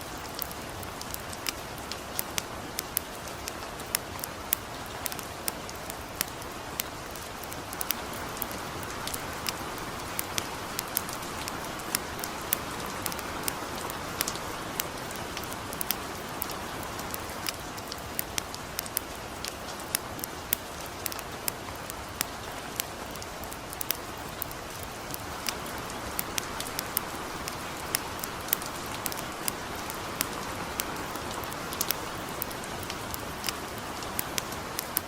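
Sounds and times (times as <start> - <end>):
light rain hissing: 0.0 - 35.0
campfire crackling and popping: 0.1 - 35.0.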